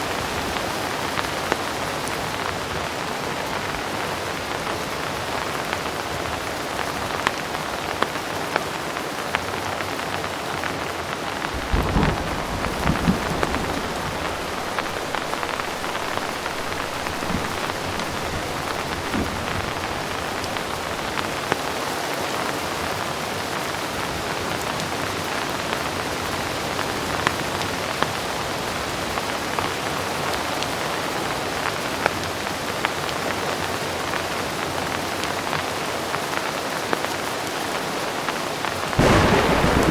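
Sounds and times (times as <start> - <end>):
heavy rain: 0.0 - 39.9
raindrops ticking: 11.2 - 21.6, 39.0 - 39.9
low thunder rumble: 11.3 - 21.6, 39.0 - 39.9.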